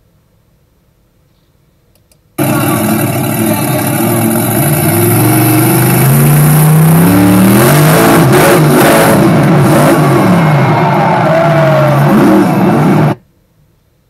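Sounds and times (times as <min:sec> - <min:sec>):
heavy rumble: 0:02.4 - 0:13.2
loud engines revving: 0:02.4 - 0:13.2.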